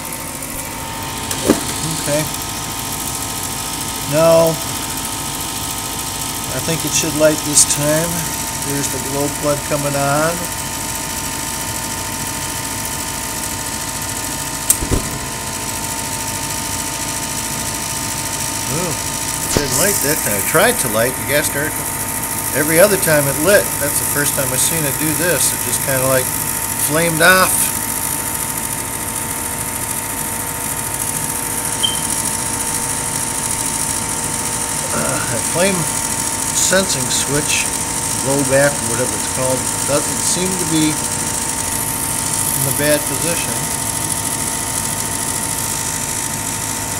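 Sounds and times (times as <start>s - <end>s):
low ignition thump: 0.0s - 2.3s, 14.7s - 15.7s, 19.4s - 20.3s
furnace fan motor humming: 0.0s - 46.9s
brief high chirp: 31.8s - 32.2s.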